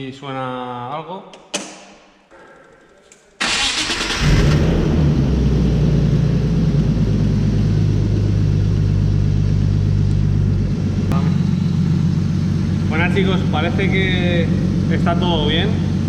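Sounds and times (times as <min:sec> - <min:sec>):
car engine idling: 0:03.4 - 0:16.0.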